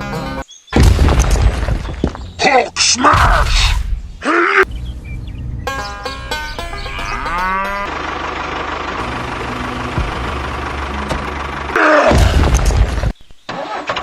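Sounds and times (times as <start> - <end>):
low engine-like drone: 4.7 - 12.9.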